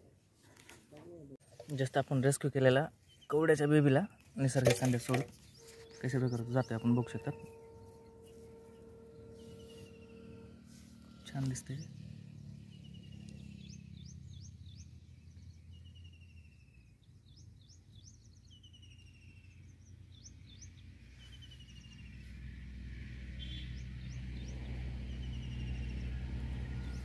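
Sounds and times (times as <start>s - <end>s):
birds chirping and trilling: 3.0s - 22.4s, 23.4s - 27.0s
low steady hum: 4.7s - 13.1s.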